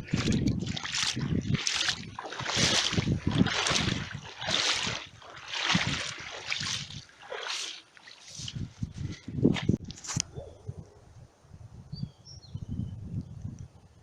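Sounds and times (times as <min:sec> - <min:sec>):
floodwater splashing: 0:00.0 - 0:08.7.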